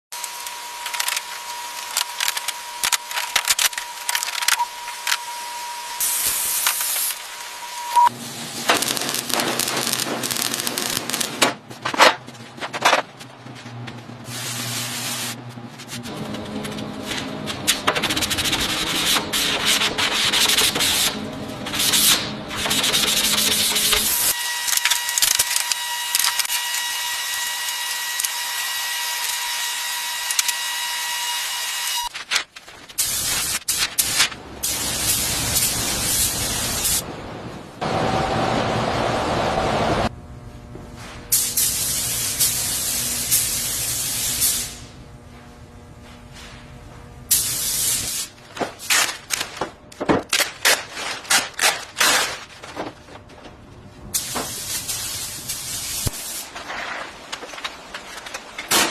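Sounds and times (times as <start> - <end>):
steady machine whine: 0.2 - 32.1
car bodywork being sanded: 14.3 - 24.4.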